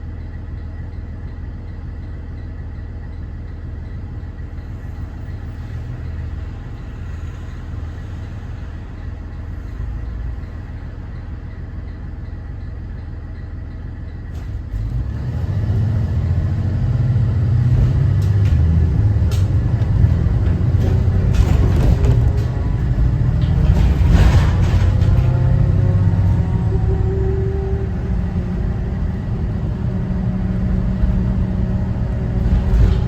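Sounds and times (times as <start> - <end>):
bus engine and road rumble: 0.0 - 33.0
rattles and clicks: 17.6 - 26.6, 32.3 - 33.0.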